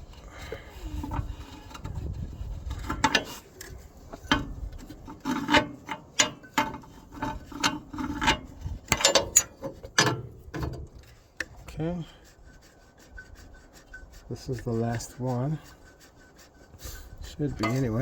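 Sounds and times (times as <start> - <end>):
wrench clicking and knocking metal: 5.1 - 10.9.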